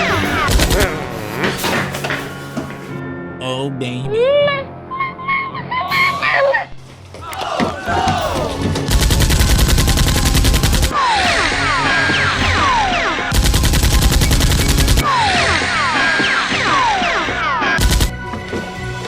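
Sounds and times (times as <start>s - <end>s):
background music: 0.0s - 19.0s
rapid automatic gunfire: 8.9s - 15.1s, 17.8s - 18.1s.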